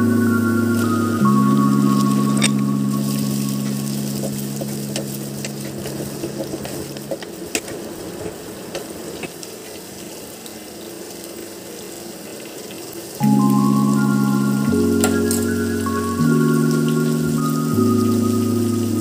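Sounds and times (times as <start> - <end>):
soft background music: 0.0 - 7.2, 13.2 - 19.0
vegetables sizzling in oil: 0.1 - 7.5, 8.6 - 19.0.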